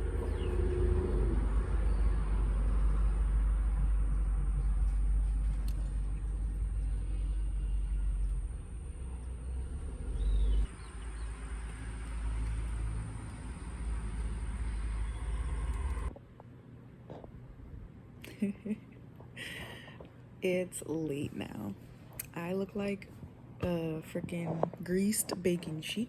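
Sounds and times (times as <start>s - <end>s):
car rumbling on road: 0.0s - 16.2s.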